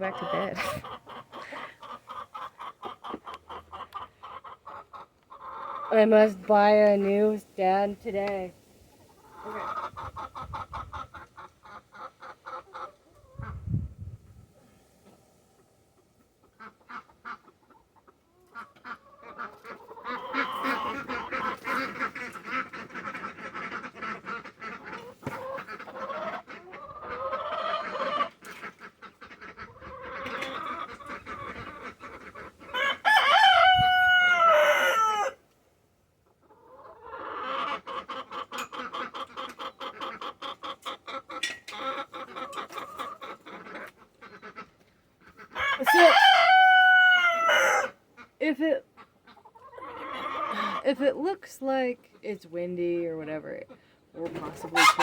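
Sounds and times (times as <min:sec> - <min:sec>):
chickens clucking: 0:00.0 - 0:35.4, 0:36.1 - 0:52.2, 0:53.6 - 0:55.0
rooster crowing: 0:32.8 - 0:35.4, 0:45.6 - 0:48.0.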